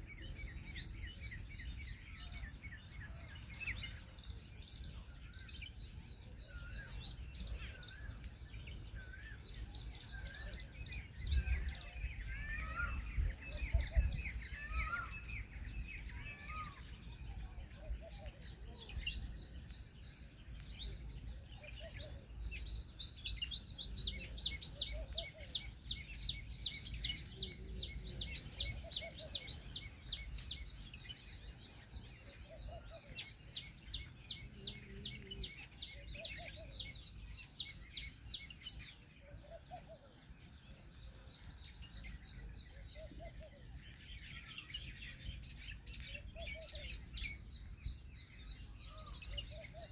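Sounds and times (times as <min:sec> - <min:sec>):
small birds chirping in trills: 0:00.0 - 0:49.9
faint low cooing: 0:34.3 - 0:37.0.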